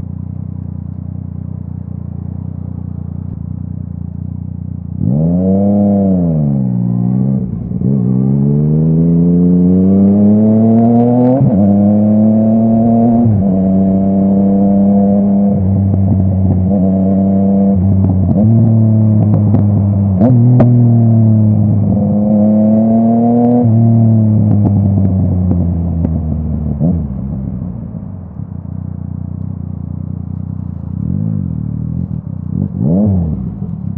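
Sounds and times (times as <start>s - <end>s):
motorcycle engine accelerating: 0.0s - 33.9s
exhaust cracks: 6.2s - 9.0s, 10.9s - 16.9s, 24.0s - 33.9s.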